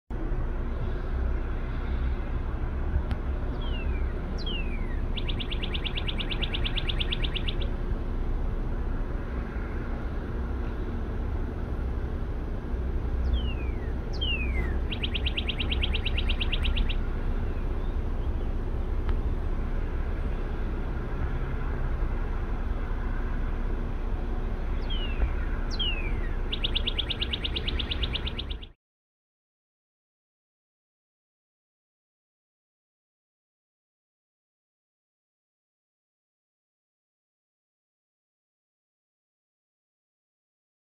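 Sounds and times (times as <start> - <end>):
diesel train rumble: 0.1 - 28.6
songbird whistles and trill: 3.5 - 7.7, 13.2 - 17.0, 24.8 - 28.8.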